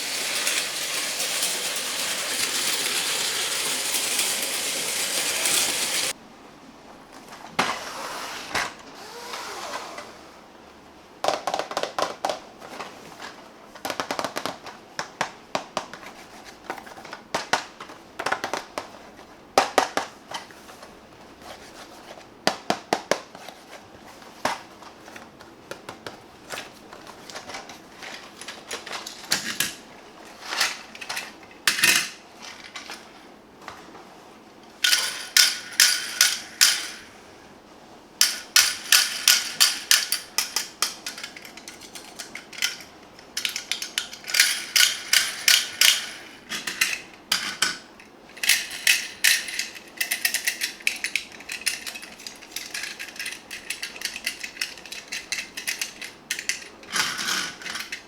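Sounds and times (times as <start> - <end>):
plastic toy mechanism clicking: 48.4 - 58.0.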